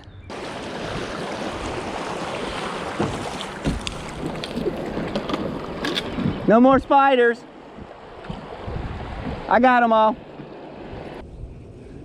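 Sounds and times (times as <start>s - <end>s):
wind: 0.0s - 12.0s
river water rushing: 0.3s - 6.5s.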